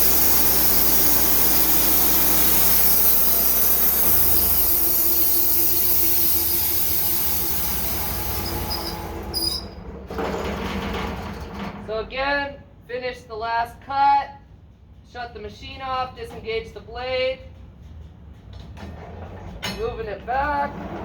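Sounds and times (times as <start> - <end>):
sawmill blade cutting log: 0.0 - 9.7.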